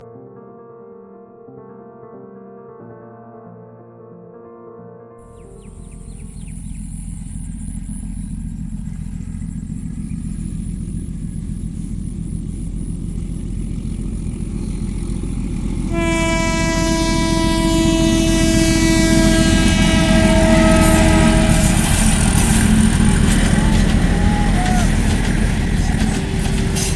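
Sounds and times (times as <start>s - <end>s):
train rumbling: 5.3s - 26.9s
train horn blast: 14.6s - 26.9s.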